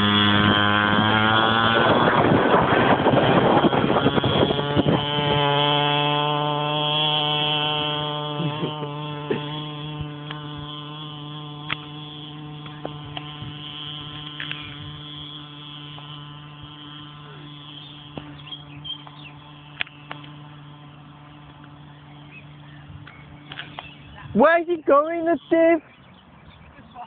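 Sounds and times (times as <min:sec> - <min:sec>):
small dirt bike engine droning: 0:00.0 - 0:27.0.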